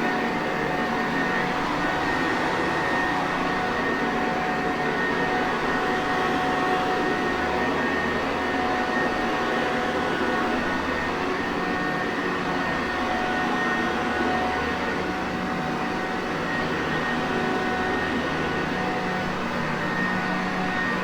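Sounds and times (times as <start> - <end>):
vacuum cleaner running: 0.0 - 10.5.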